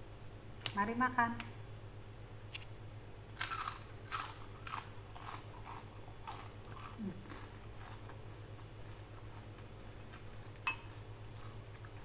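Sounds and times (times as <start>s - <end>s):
crunchy food chewing: 3.4s - 12.0s.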